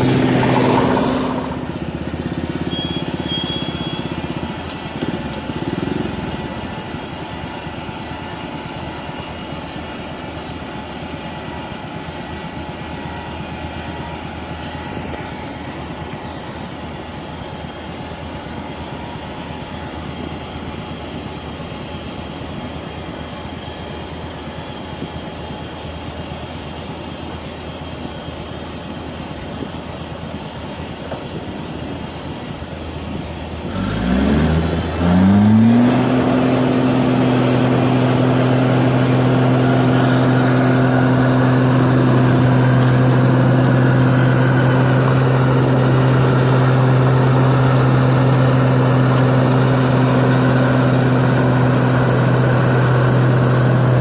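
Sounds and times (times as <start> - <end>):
combine harvester engine revving: 0.0 - 8.0, 33.0 - 54.0.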